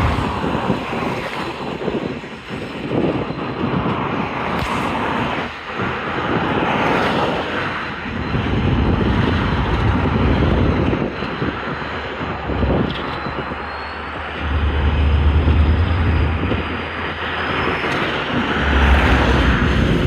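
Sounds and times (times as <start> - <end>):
steady noisy rumble: 0.0 - 2.2, 7.9 - 20.0
wind buffeting microphone: 0.0 - 20.0.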